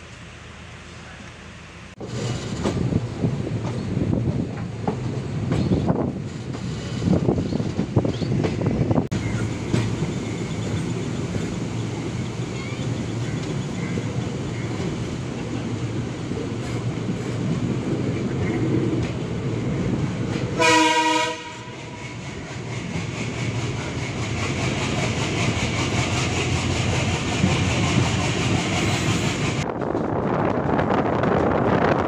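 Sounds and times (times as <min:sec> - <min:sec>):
train wheels clicking over joints: 0:02.0 - 0:20.6, 0:21.7 - 0:30.1
locomotive horn: 0:20.6 - 0:22.0.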